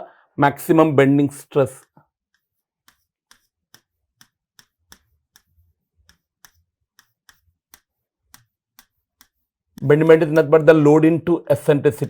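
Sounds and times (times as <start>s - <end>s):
pen clicking while writing: 2.3s - 9.5s.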